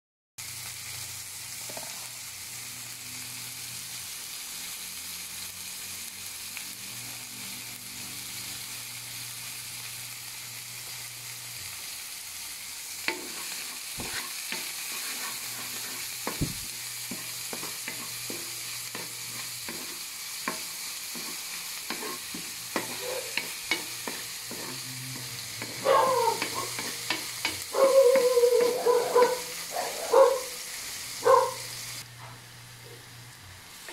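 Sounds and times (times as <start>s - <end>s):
onion and garlic sizzling in oil: 0.4s - 33.9s
dog barking: 22.9s - 23.4s, 25.7s - 26.8s, 27.7s - 30.6s, 31.2s - 31.7s.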